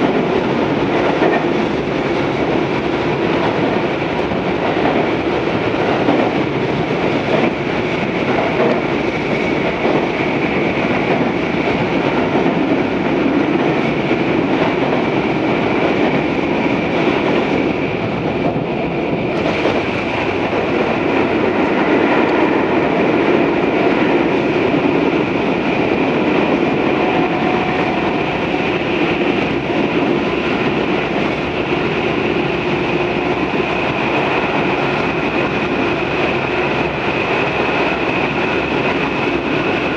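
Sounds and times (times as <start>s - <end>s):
train wheels rolling on rails: 0.0s - 39.9s.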